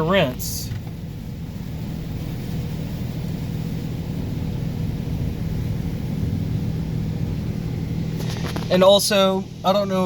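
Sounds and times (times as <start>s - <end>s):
low rumble: 0.0s - 9.7s.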